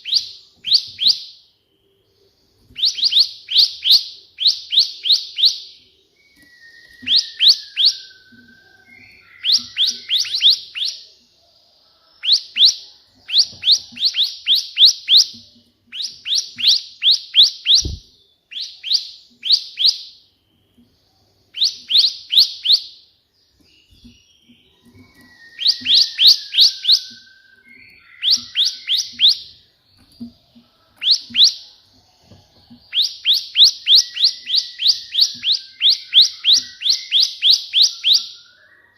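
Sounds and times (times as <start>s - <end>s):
bird chirping: 0.0s - 38.9s
low falling whistle: 6.2s - 10.4s, 24.9s - 29.3s.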